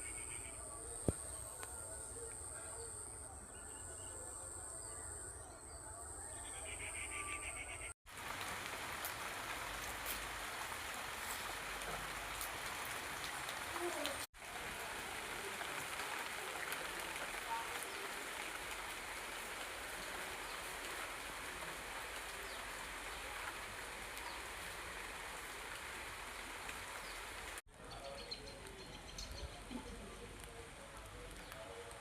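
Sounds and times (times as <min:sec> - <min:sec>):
steady rain falling: 0:08.1 - 0:27.6, 0:28.5 - 0:32.0.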